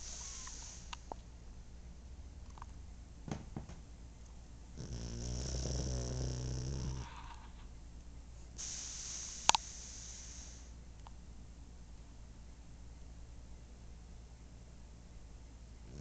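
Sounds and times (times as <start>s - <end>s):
hissing breath: 0.0s - 1.1s, 8.6s - 10.8s
dog snoring: 4.8s - 7.6s.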